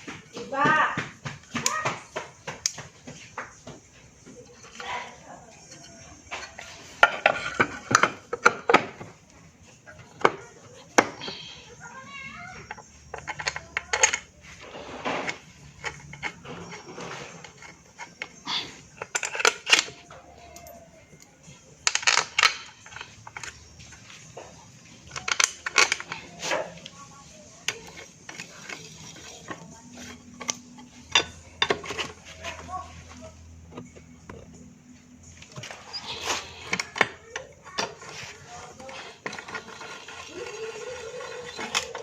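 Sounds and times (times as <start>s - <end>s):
metallic clinks of hand tools: 17.5s - 21.2s.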